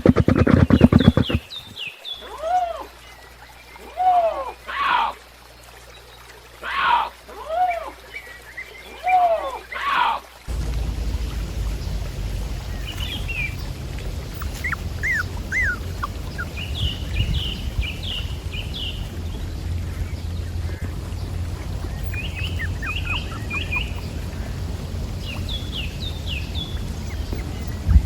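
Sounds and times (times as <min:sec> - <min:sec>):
birds chirping: 0:00.0 - 0:02.3, 0:10.5 - 0:28.0
low wind rumble: 0:10.5 - 0:28.0
animal crying: 0:14.3 - 0:18.4.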